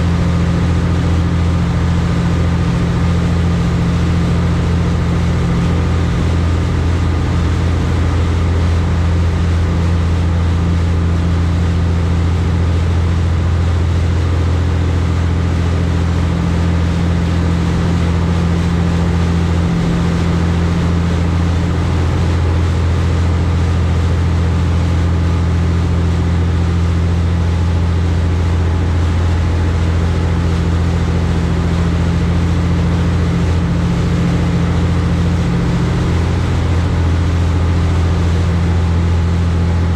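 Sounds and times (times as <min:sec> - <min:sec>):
boat engines droning: 0:00.0 - 0:39.9
hull rushing through water: 0:00.0 - 0:39.9.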